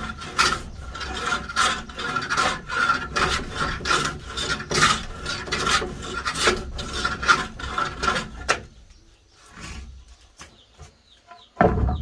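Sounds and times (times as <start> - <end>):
hand tool rasping wood: 0.0 - 8.8.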